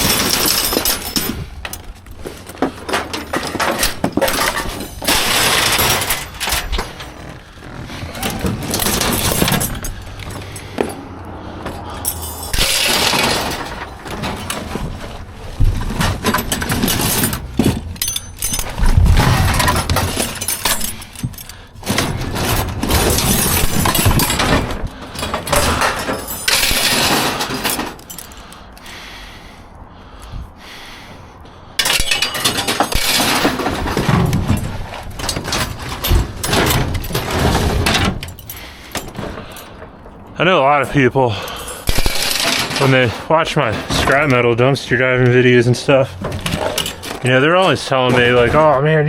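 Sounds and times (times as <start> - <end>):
scrap metal clattering and crashing: 0.0 - 28.8, 31.8 - 49.0
metal scraping: 0.0 - 28.9, 31.8 - 49.0.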